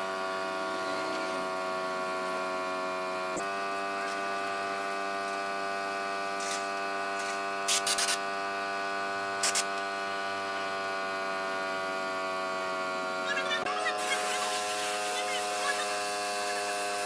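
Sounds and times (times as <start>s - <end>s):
steady electric hum: 0.0s - 17.0s.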